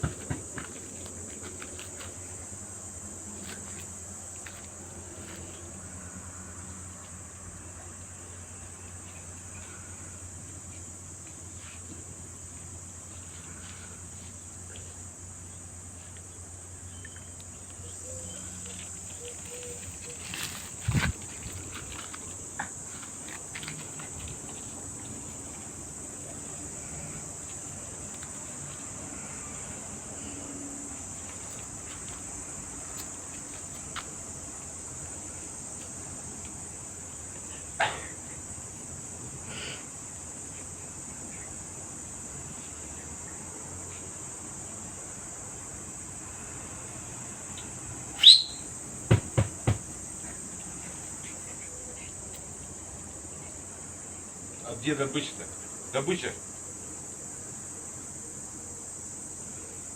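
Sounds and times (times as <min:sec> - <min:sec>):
high insect chirring: 0:00.0 - 0:59.9
sharp knocks: 0:49.1 - 0:49.9.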